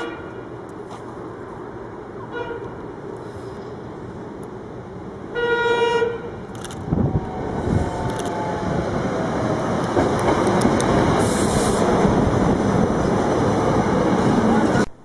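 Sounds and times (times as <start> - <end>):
train wheels rumbling on rails: 6.3 - 15.0.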